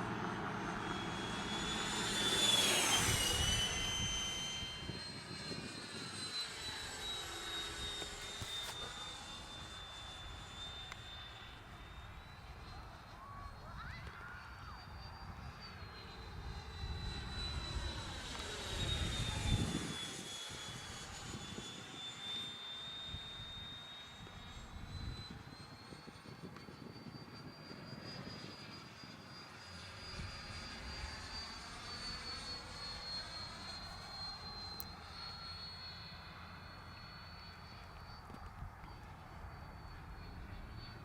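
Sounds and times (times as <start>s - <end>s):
model jet fan whine: 0.0s - 41.0s
wind rumble on microphone: 18.8s - 20.0s.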